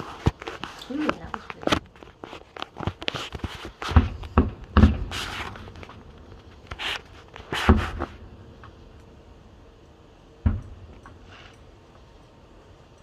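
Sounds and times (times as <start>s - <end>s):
fireworks booming and popping: 0.0s - 9.1s, 10.3s - 11.5s.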